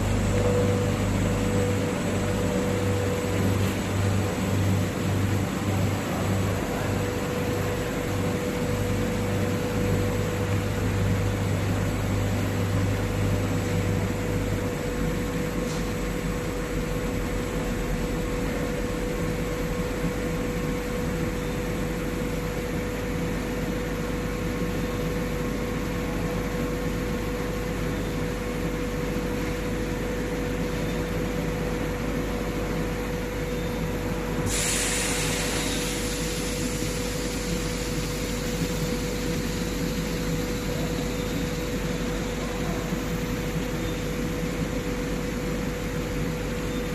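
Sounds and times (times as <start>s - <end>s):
low hum: 0.0s - 15.6s
brief hiss: 34.4s - 37.7s.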